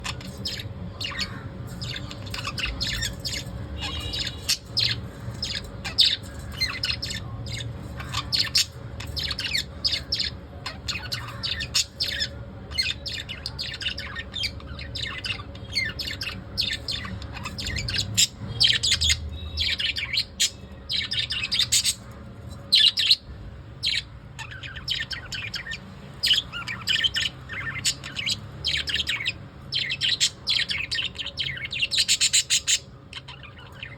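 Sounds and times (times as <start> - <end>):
lovebirds chirping: 0.0 - 33.9.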